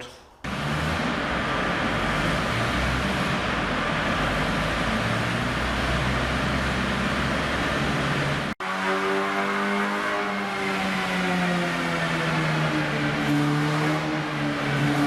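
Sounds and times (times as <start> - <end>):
race car engine running: 0.5 - 8.8.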